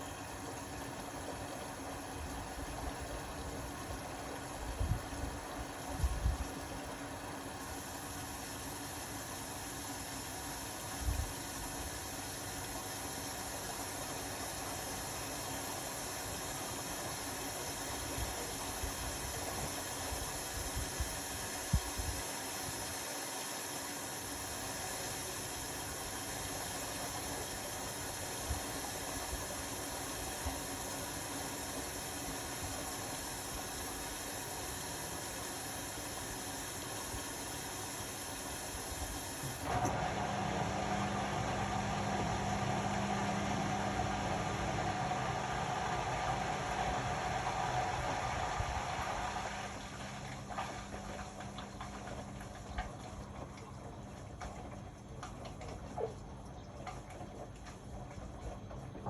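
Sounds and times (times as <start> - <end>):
washing machine running: 0.0 - 59.0.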